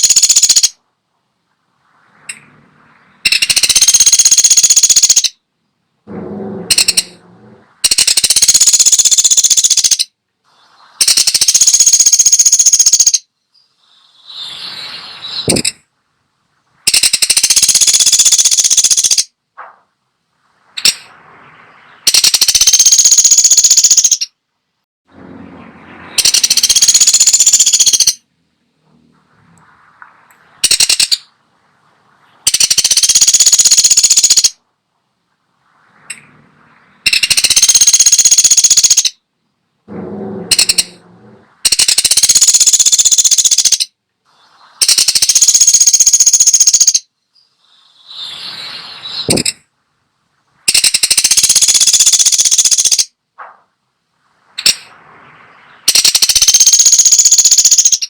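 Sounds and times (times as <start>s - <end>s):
woodpecker rattling calls: 0.0s - 0.8s, 3.2s - 5.4s, 6.7s - 7.2s, 7.8s - 10.2s, 11.0s - 14.5s, 15.3s - 15.8s, 16.9s - 19.4s, 20.8s - 21.1s, 21.9s - 24.4s, 26.2s - 28.2s, 30.6s - 31.3s, 32.4s - 34.6s, 37.0s - 39.2s, 40.4s - 41.0s, 41.6s - 44.0s, 44.8s - 48.3s, 49.1s - 49.6s, 50.7s - 53.2s, 54.6s - 54.9s, 55.8s - 58.0s.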